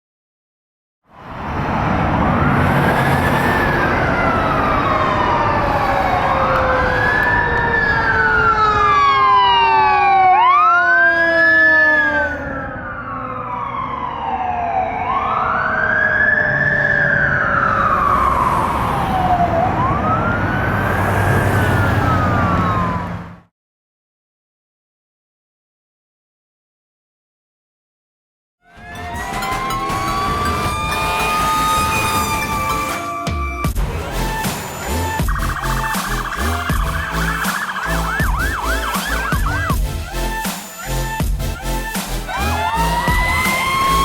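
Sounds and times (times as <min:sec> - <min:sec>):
fire engine siren wailing: 0:01.1 - 0:23.5, 0:28.6 - 0:44.0
truck engine low rumble: 0:33.7 - 0:40.4.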